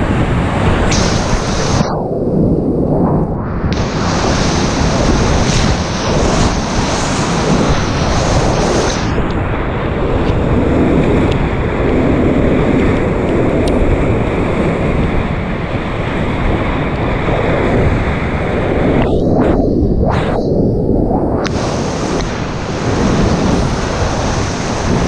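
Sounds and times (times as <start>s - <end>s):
whitewater rushing: 3.8s - 9.2s, 21.5s - 25.0s.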